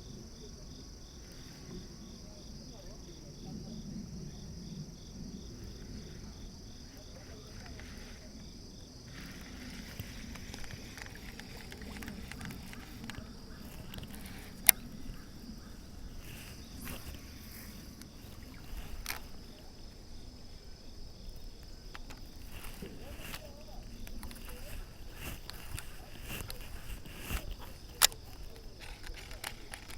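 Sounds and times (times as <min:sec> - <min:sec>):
insects chirping: 0:00.0 - 0:29.9
low rustling: 0:03.8 - 0:29.9
faint ticks: 0:09.1 - 0:19.9, 0:21.3 - 0:29.9.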